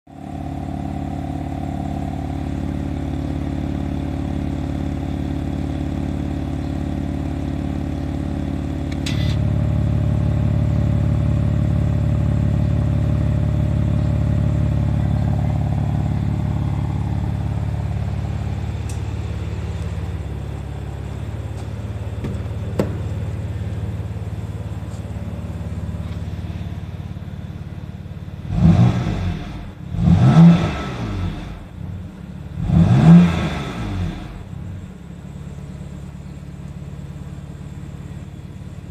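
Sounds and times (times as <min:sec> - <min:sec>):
car engine idling: 0:00.1 - 0:38.9
engine revving: 0:08.8 - 0:21.2, 0:28.3 - 0:34.7
click: 0:18.8 - 0:19.0.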